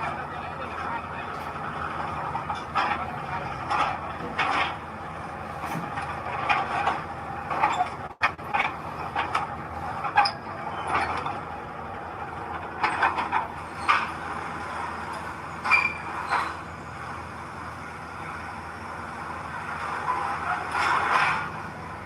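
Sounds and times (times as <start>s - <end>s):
diesel machinery running: 0.0s - 22.0s
brief squeal: 15.6s - 16.7s.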